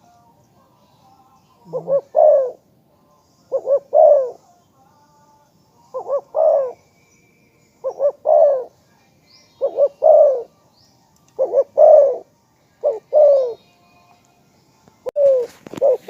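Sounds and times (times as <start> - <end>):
dove cooing: 1.6 - 2.6, 3.5 - 4.4, 5.9 - 6.8, 7.8 - 8.8, 9.6 - 10.5, 11.4 - 13.6, 15.0 - 16.0.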